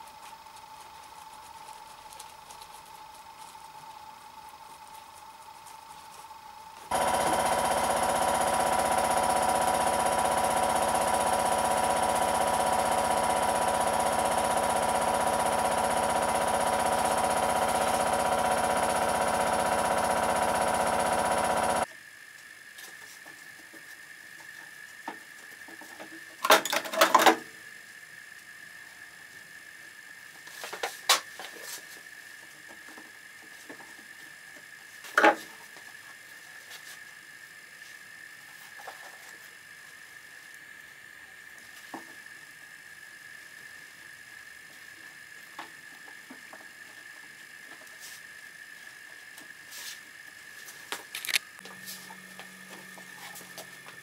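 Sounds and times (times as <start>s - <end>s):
workshop machine humming: 6.2s - 21.9s, 50.6s - 54.0s.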